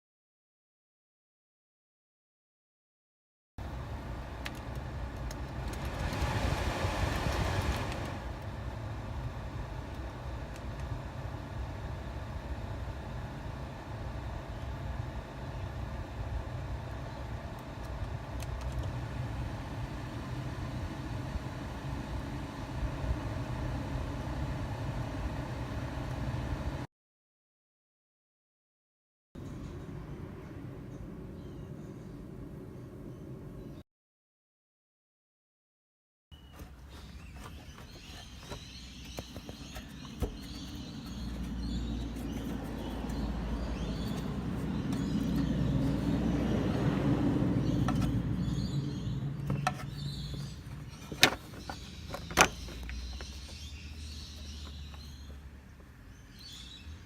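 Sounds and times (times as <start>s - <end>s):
car engine humming: 15.4s - 26.8s, 36.9s - 55.4s
birds chirping: 29.4s - 33.8s, 36.4s - 57.0s
car engine idling: 39.0s - 53.7s.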